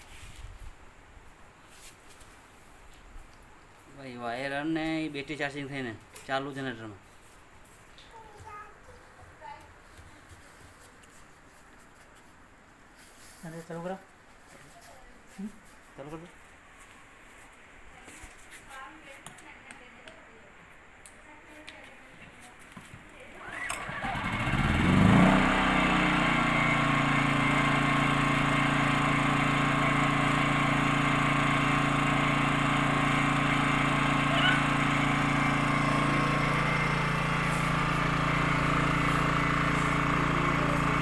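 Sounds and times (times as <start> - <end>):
generator engine starting and running: 23.2 - 41.0.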